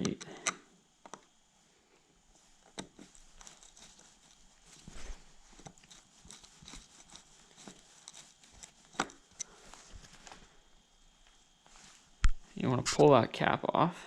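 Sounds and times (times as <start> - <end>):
screwdriver clicks and taps: 0.0 - 1.3, 7.6 - 9.5.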